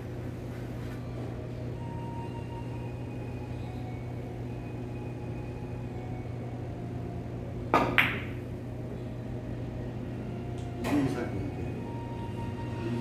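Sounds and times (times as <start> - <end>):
low room hum: 0.0 - 13.0
cue striking billiard ball: 7.7 - 8.5
billiard balls clacking: 7.8 - 8.5.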